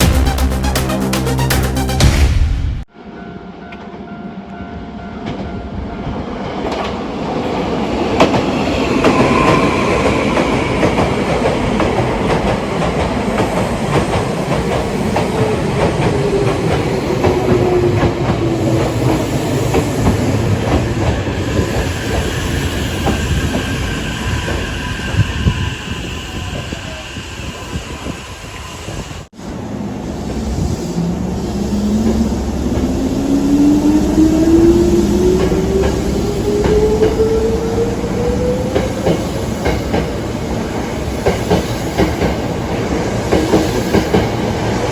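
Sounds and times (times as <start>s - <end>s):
train whine falling in pitch: 8.1s - 12.4s, 15.4s - 40.1s.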